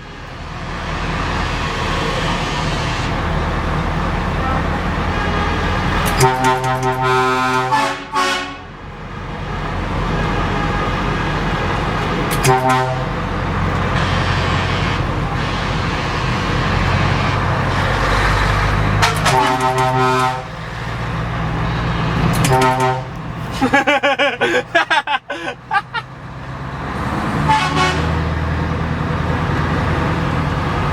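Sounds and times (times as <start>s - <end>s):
diesel engine running: 0.0s - 30.9s
truck air horn blasts: 4.4s - 8.7s, 9.5s - 11.7s, 12.3s - 13.2s, 13.9s - 18.0s, 19.0s - 20.6s, 22.4s - 23.2s, 27.4s - 28.2s.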